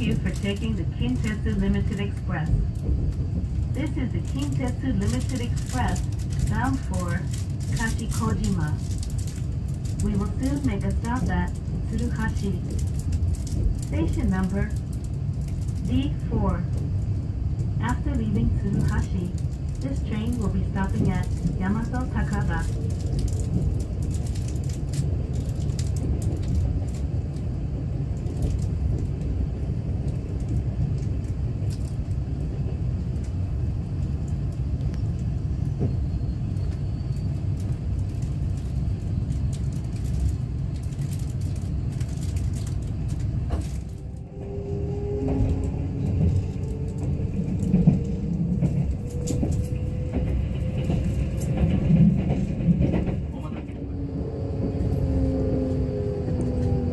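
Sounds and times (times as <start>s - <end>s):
train rumbling: 0.0s - 56.9s
train motor whine: 43.5s - 51.5s, 53.8s - 56.9s.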